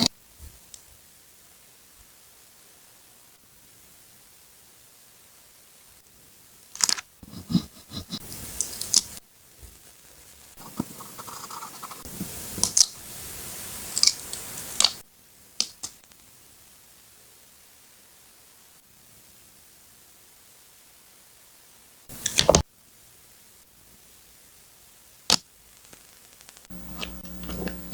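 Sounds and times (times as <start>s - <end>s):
paper rustling and scraping: 8.3s - 12.8s.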